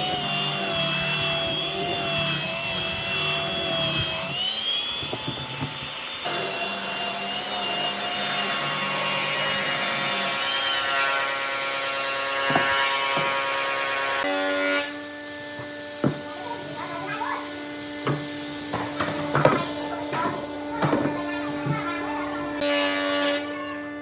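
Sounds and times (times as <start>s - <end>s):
electric power tool on wood: 0.0s - 23.4s
short knocks: 12.4s - 13.7s, 18.0s - 21.9s.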